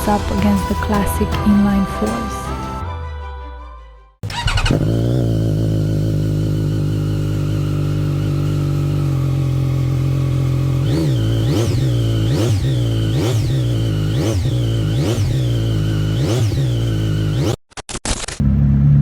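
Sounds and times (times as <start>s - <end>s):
motorcycle engine revving: 4.2s - 17.6s.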